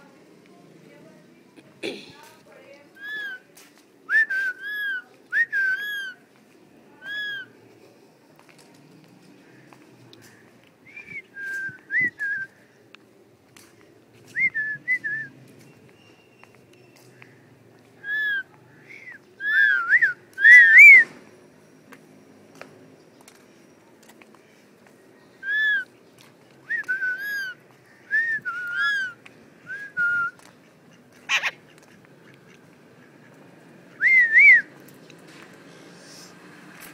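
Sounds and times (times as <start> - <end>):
parrot squawk: 31.3 - 31.7.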